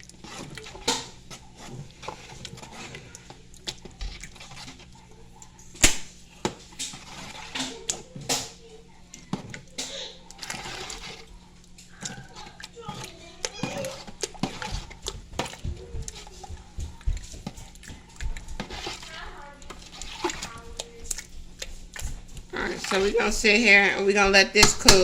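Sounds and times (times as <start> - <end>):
steady low hum: 0.0 - 25.0
utensils and cookware clinking: 0.0 - 25.0
children's voices: 7.4 - 17.4, 18.0 - 21.2.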